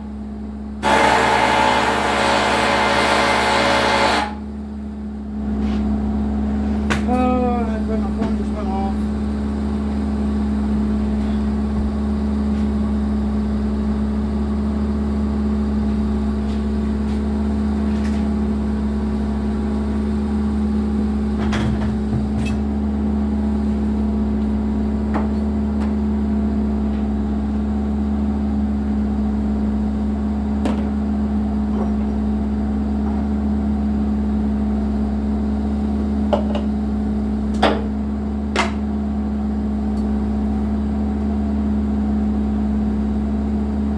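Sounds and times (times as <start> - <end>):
excavator diesel engine running: 0.0 - 5.4.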